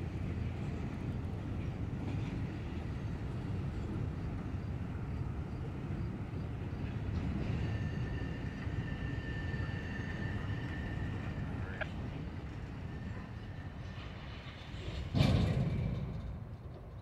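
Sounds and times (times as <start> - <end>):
diesel locomotive and rolling cars: 0.0 - 17.0.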